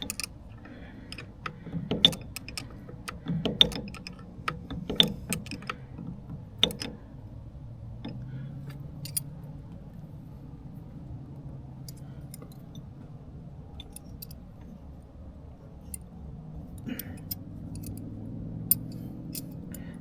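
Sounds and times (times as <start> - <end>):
wrenches clinking on nuts: 0.0 - 7.0, 8.0 - 9.4, 13.7 - 14.4, 16.8 - 19.8.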